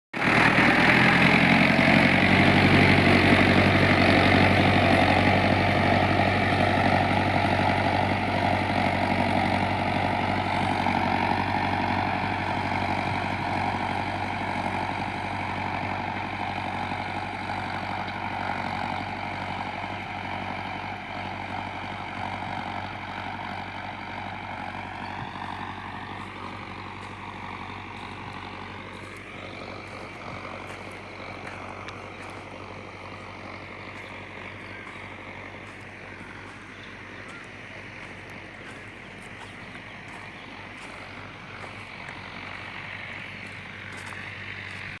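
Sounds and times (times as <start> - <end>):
tractor diesel engine running: 0.1 - 45.0.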